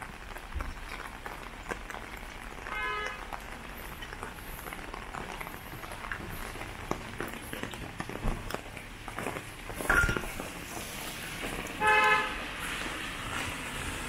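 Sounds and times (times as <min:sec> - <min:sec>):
rain hissing: 0:00.0 - 0:14.0
raindrops ticking: 0:00.0 - 0:14.0
street noise: 0:00.0 - 0:14.0.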